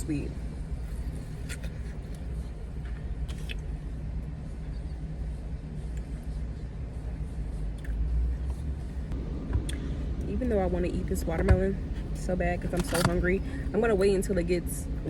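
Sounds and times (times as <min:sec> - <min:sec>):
car running from inside: 0:08.2 - 0:15.0.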